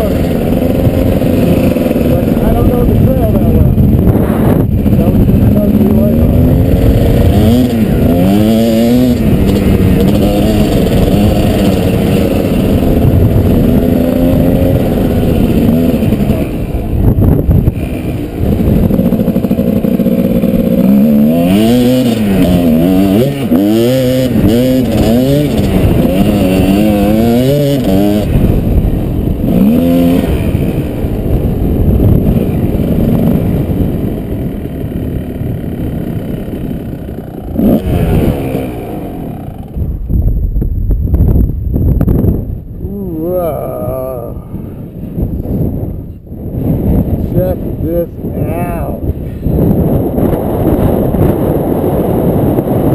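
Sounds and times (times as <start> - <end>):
dirt bike engine revving: 0.0 - 40.2.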